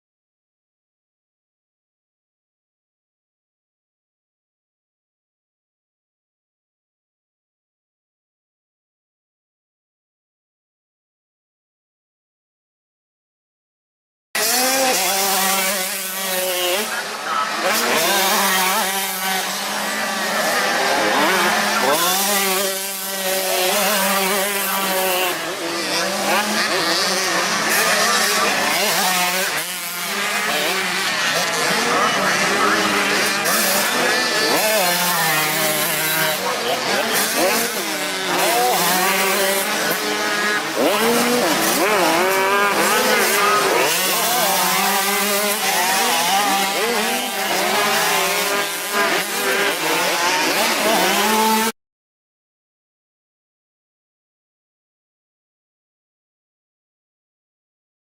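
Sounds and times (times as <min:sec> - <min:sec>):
dirt bike engines revving: 0:14.4 - 0:51.8.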